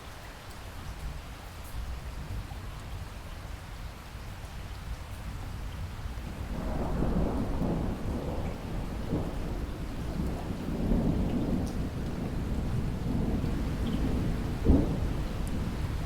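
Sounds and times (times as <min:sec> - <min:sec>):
steady rain: 0:00.0 - 0:16.0
rolling thunder: 0:06.3 - 0:16.0.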